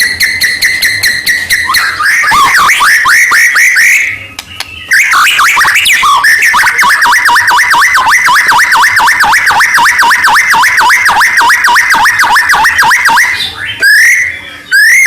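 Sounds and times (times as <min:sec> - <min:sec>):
songbird whistling and trilling: 0:00.0 - 0:07.5, 0:12.6 - 0:15.0.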